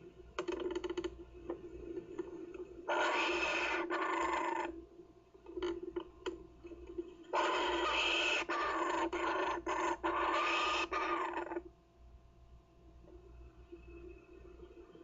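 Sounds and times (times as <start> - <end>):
kookaburra chick raspy call: 2.9 - 4.7, 7.3 - 11.6.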